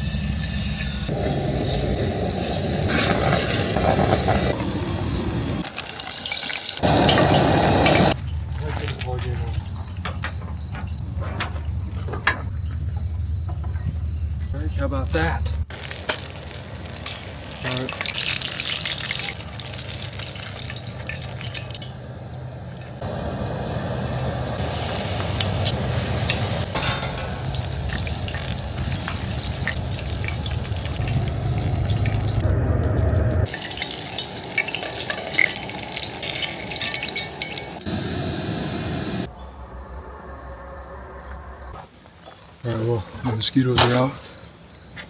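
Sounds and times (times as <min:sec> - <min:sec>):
fish and chips frying in oil: 0:00.0 - 0:07.2, 0:15.7 - 0:23.0, 0:23.9 - 0:32.4, 0:33.4 - 0:37.9.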